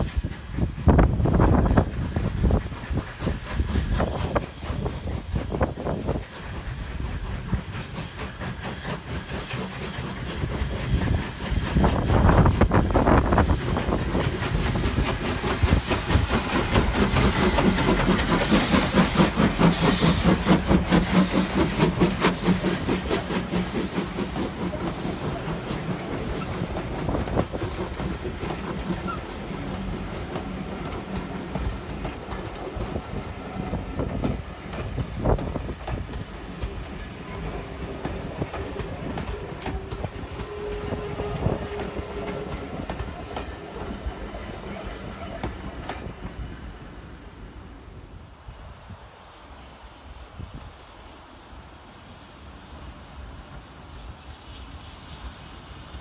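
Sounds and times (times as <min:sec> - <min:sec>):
steam hissing: 0:00.0 - 0:56.0
steam locomotive exhaust beating: 0:00.0 - 0:56.0
wheels clicking over rail joints: 0:01.8 - 0:46.4.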